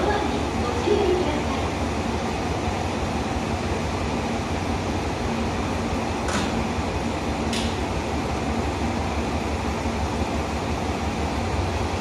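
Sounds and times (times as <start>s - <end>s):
diesel railcar engine idling: 0.0s - 12.0s.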